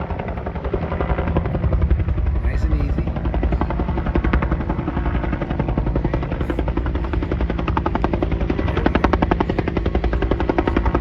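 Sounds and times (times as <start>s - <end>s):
helicopter engine drone: 0.0s - 11.0s
helicopter rotor chopping: 0.0s - 11.0s.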